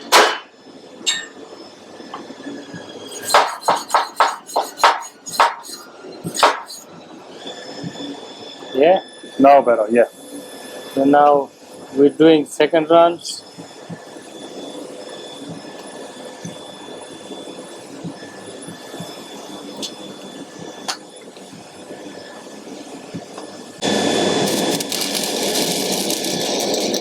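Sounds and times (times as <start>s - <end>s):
low workshop noise: 0.0s - 27.0s
welding arc hissing: 3.1s - 6.8s, 23.8s - 27.0s.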